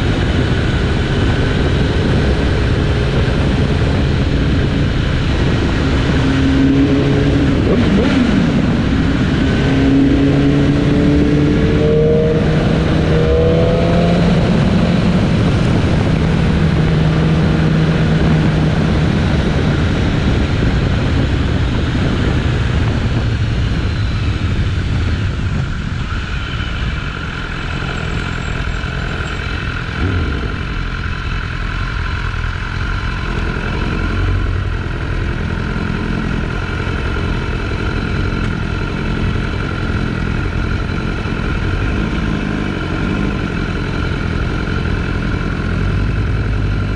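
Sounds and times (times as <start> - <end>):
wind rush on microphone: 0.0 - 31.0.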